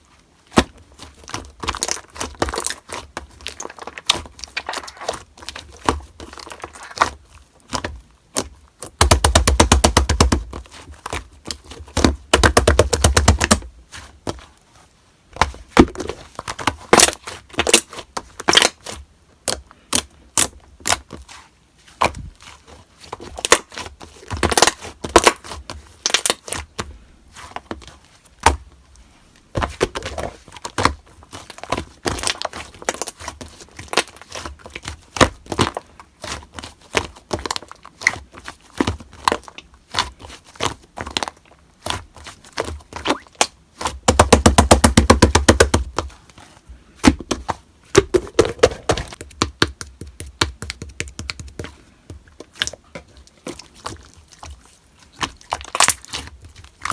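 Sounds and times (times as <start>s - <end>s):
hands squeezing sticky slime: 0.6s - 7.1s, 29.7s - 46.2s, 47.9s - 56.9s.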